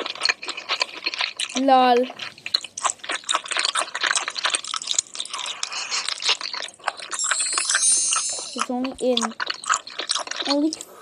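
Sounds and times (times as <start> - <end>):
person biting and chewing food: 0.0 - 11.0.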